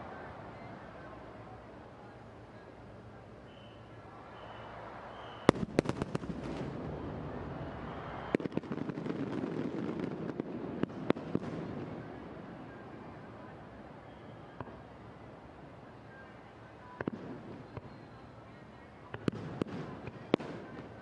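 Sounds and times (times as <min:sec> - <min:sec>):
fireworks cracking: 0:05.4 - 0:12.2.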